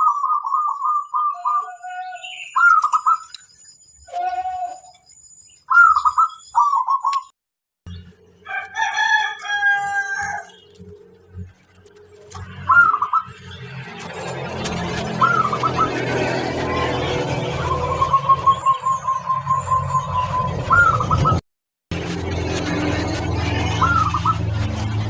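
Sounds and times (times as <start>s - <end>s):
doves cooing: 0.0s - 3.3s, 8.7s - 21.4s, 23.4s - 24.6s
rooster crowing: 8.4s - 10.6s.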